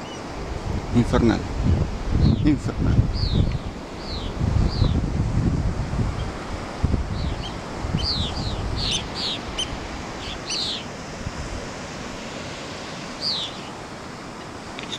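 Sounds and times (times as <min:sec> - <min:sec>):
birds chirping: 0:00.0 - 0:00.3, 0:02.2 - 0:05.1, 0:06.1 - 0:11.2, 0:13.0 - 0:14.9
wind and surf rushing: 0:00.0 - 0:14.9.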